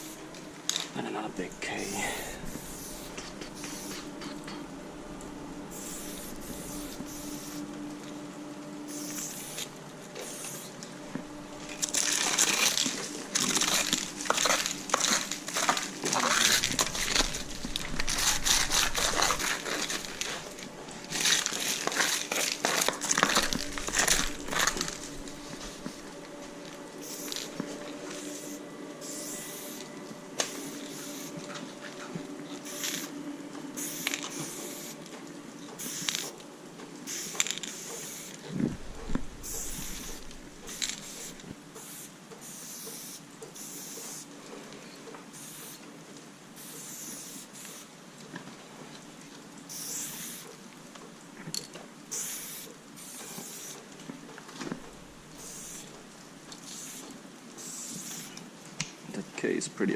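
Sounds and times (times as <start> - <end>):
spray-paint can hissing: 0.0 - 0.2, 1.8 - 4.4, 5.7 - 7.7, 8.9 - 10.8, 11.7 - 20.6, 21.2 - 26.0, 27.0 - 31.4, 32.6 - 33.1, 33.8 - 35.0, 35.8 - 36.4, 37.0 - 38.4, 39.4 - 44.3, 45.3 - 45.8, 46.6 - 47.9, 49.7 - 50.5, 52.1 - 53.9, 55.3 - 56.0, 56.6 - 58.4.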